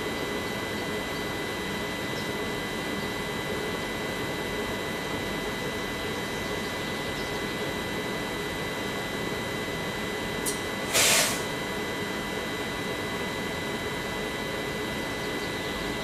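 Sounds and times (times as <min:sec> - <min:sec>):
train equipment whirring hum: 0:00.0 - 0:16.0
short loud hiss: 0:10.4 - 0:11.5.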